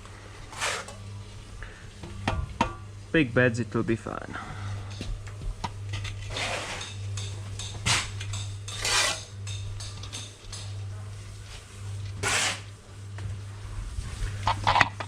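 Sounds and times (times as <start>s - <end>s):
low hum: 0.0s - 15.0s
trowel scraping mortar: 0.5s - 1.0s, 6.2s - 7.0s, 7.8s - 9.3s, 12.2s - 12.7s.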